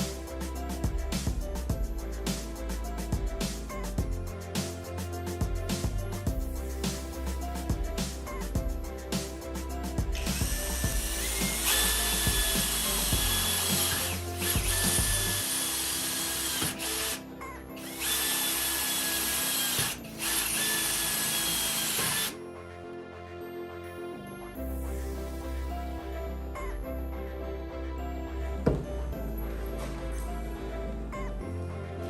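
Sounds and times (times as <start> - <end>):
background music: 0.0 - 32.0
power tool motor whine: 10.2 - 17.2, 17.8 - 22.4.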